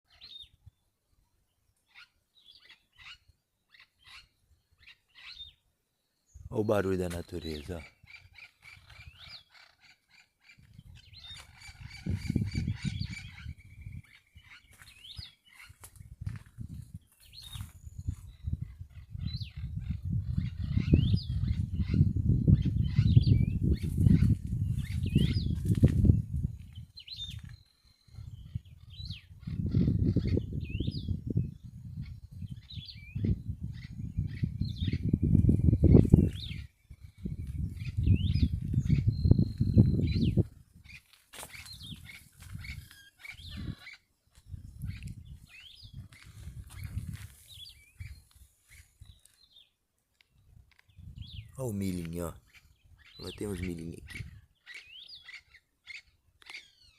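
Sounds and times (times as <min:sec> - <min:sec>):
birds chirping: 0:00.1 - 0:56.9
low rumbling microphone noise: 0:28.2 - 0:40.9.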